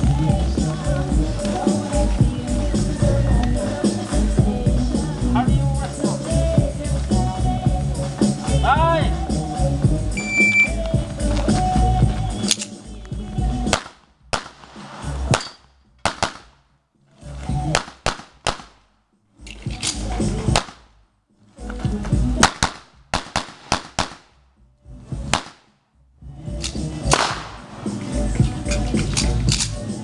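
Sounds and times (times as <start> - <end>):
background music: 0.0 - 30.0
pistol shots: 13.7 - 16.6, 17.7 - 18.8, 20.5 - 20.8, 22.4 - 24.3, 25.3 - 25.7, 27.1 - 27.8.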